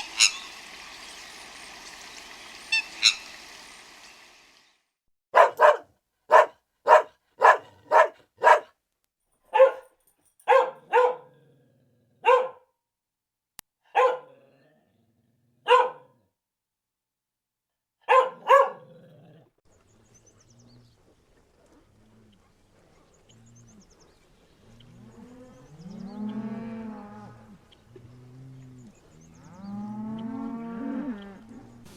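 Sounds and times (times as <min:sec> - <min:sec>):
dog barking: 0:05.3 - 0:08.8, 0:09.5 - 0:11.4, 0:12.2 - 0:12.7, 0:13.9 - 0:14.4, 0:15.6 - 0:16.2, 0:18.0 - 0:19.0.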